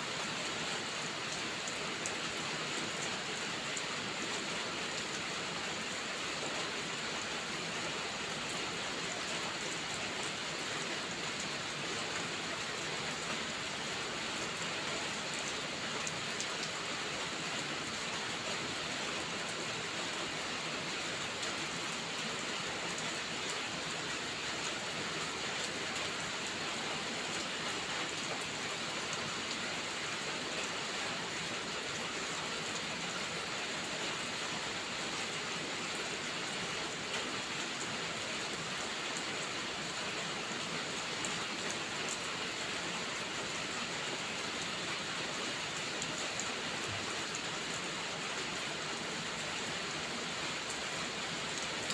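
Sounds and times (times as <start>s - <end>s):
heavy rain falling: 0.1s - 51.9s.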